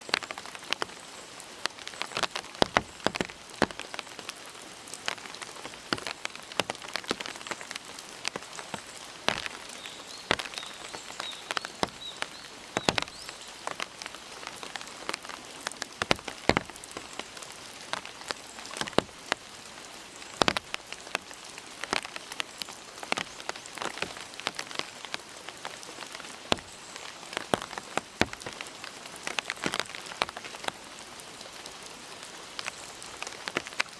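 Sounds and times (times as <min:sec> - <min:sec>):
rain falling: 0:00.0 - 0:33.9
drips hitting surfaces: 0:09.3 - 0:13.3.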